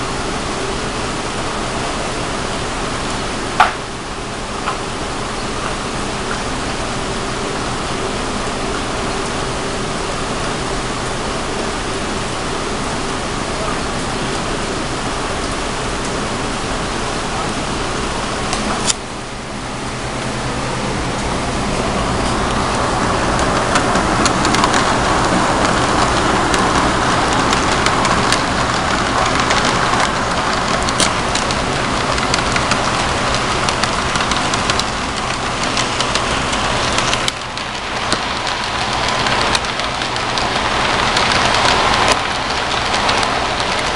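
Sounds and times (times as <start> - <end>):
low motor hum: 0.0 - 43.9
model train wheels rattling on rails: 21.4 - 43.9.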